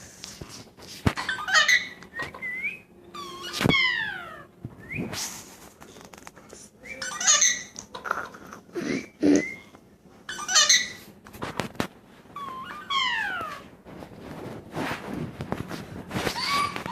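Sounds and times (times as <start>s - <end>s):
parrot whistles and squawks: 1.2s - 5.2s, 6.8s - 7.8s, 9.2s - 11.1s, 12.4s - 13.7s, 16.2s - 16.9s.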